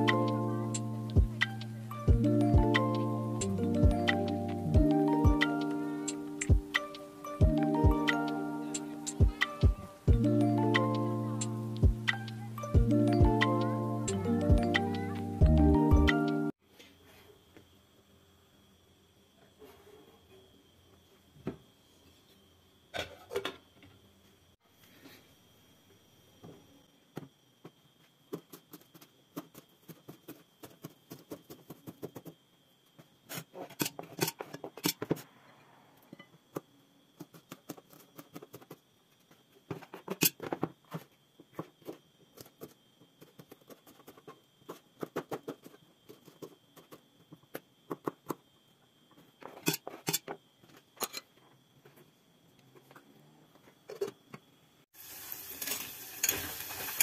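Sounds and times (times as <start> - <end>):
frying sizzle: 54.9 - 57.0.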